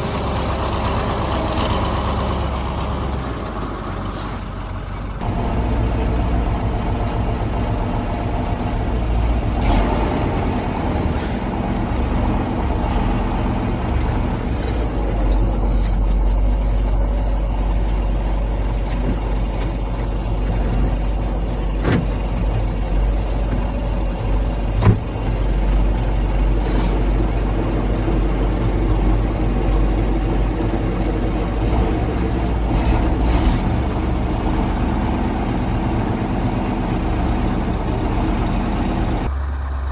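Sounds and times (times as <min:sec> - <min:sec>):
diesel truck engine running: 0:00.0 - 0:14.5, 0:25.3 - 0:39.9.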